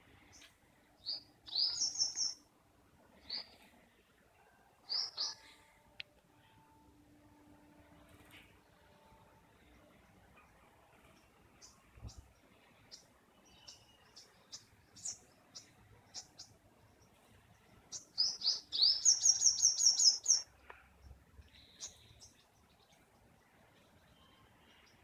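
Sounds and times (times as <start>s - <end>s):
bird chirping: 0.3s - 2.4s, 4.8s - 5.6s, 11.2s - 20.4s.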